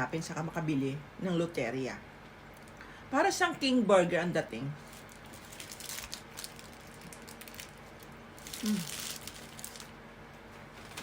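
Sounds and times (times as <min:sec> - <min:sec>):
paper wrapper crinkling: 0:04.8 - 0:10.0, 0:10.6 - 0:11.0.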